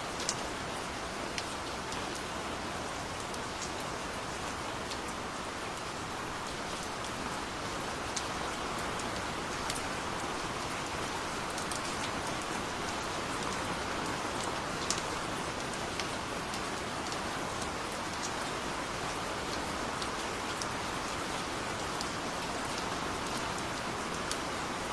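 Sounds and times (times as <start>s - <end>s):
steady rain falling: 0.0s - 24.9s.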